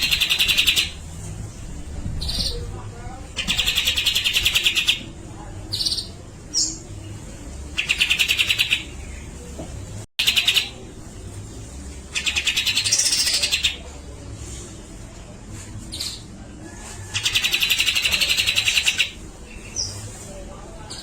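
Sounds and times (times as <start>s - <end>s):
bird chattering song: 0.0s - 1.0s, 3.4s - 5.1s, 7.7s - 9.3s, 10.2s - 10.8s, 12.1s - 13.8s, 17.2s - 20.0s.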